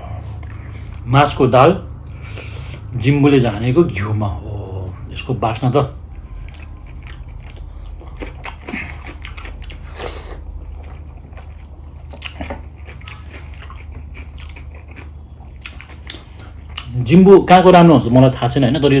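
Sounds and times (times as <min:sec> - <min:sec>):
low steady hum: 0:00.0 - 0:19.0
person chewing and smacking: 0:05.0 - 0:17.1.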